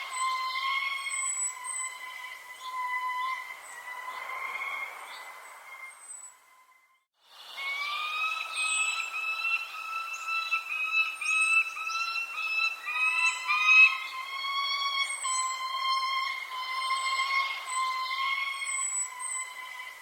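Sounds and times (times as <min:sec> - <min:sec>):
high falling bird chirps: 0:00.0 - 0:20.0
whistled birdsong: 0:00.0 - 0:20.0.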